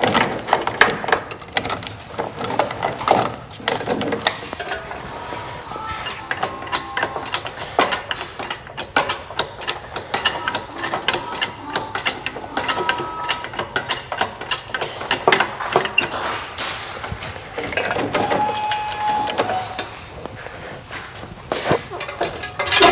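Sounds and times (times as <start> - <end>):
metal clinks: 0.0 - 5.0, 17.6 - 19.9, 21.6 - 22.9.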